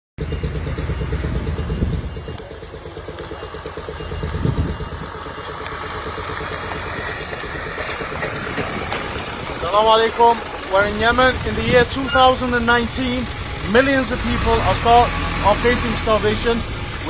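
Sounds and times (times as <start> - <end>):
vehicle engine running: 0.2 - 17.0.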